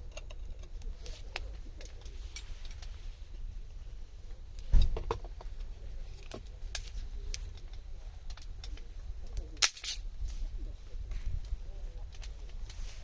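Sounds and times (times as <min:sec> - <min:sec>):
steady low rumble: 0:00.0 - 0:13.0
wood fire crackling: 0:00.0 - 0:13.0
loud thump: 0:04.7 - 0:05.2.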